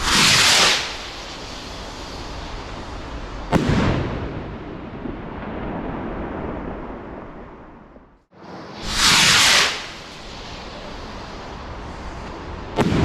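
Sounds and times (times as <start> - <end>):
firework rocket hissing: 0.0 - 4.7, 8.4 - 13.0
firework bang echoing: 3.5 - 7.2, 8.8 - 11.5, 12.2 - 13.0.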